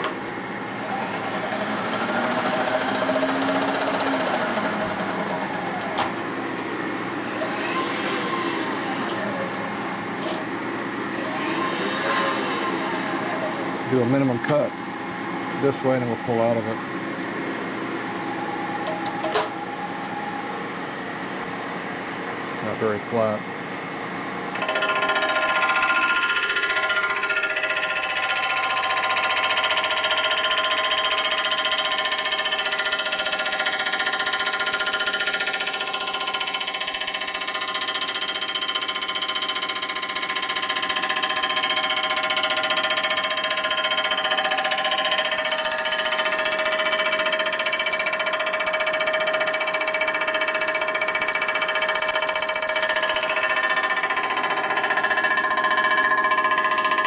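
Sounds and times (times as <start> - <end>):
metal-cutting machine whining: 0.0 - 14.7, 24.6 - 48.8, 50.0 - 55.4.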